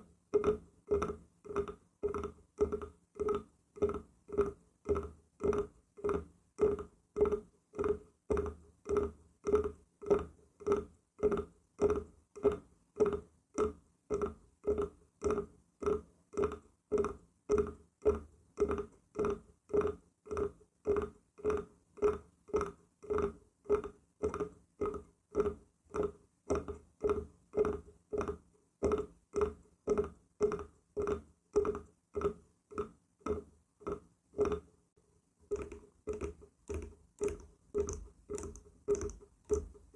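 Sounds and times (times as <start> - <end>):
hollow wood knocking: 35.5 - 39.8.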